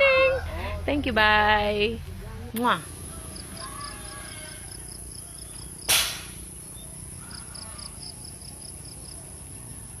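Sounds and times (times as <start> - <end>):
insects chirping: 2.6 - 10.0.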